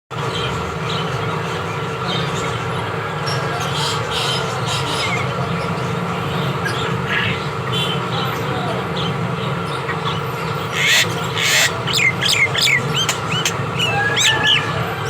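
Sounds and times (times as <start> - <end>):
steady mechanical hum: 0.2 - 15.0
bird chirping and whistling: 10.7 - 14.7.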